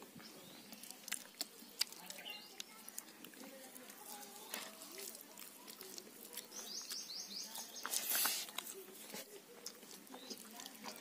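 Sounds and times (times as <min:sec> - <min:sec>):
small bird chirping: 0:00.2 - 0:03.1, 0:05.9 - 0:08.2.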